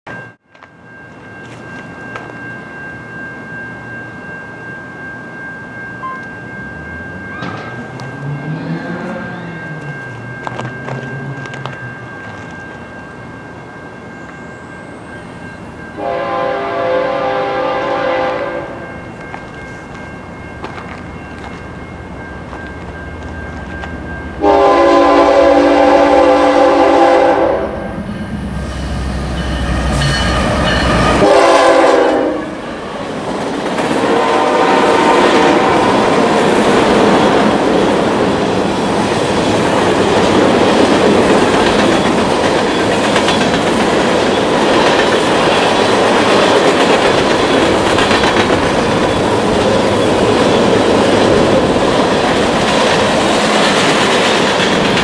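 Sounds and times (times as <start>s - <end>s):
locomotive horn blasts: 16.0s - 18.9s, 24.4s - 27.9s, 30.8s - 32.6s, 34.0s - 35.9s
train wheels clattering over rail joints: 39.4s - 55.0s.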